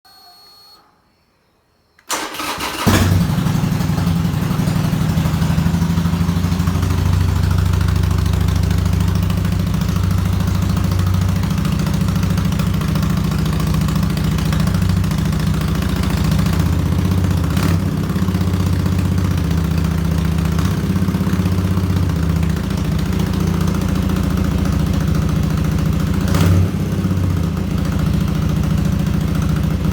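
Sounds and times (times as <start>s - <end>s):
motorcycle starter cranking: 2.0s - 5.4s
motorcycle engine idling unevenly: 2.7s - 29.9s.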